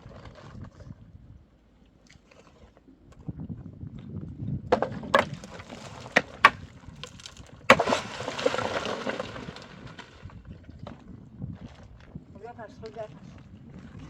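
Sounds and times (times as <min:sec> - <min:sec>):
wood clattering down: 0:04.7 - 0:10.2
wood cracking: 0:04.7 - 0:10.3.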